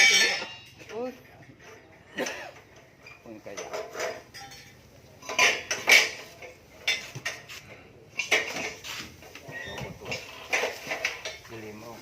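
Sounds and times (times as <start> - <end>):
hard objects clattering: 8.2 - 11.7.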